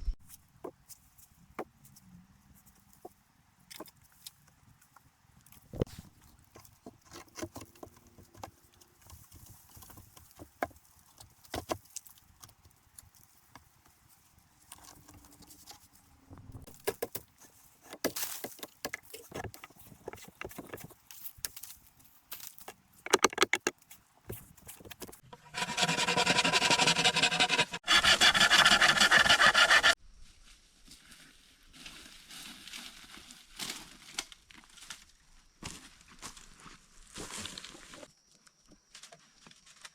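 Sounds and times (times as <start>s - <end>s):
fast rasping strokes: 25.4s - 30.0s.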